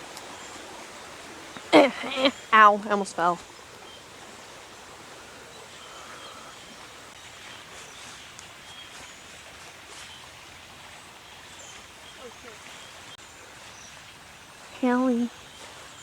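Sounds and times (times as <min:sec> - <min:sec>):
soft rustles: 0:06.8 - 0:10.4.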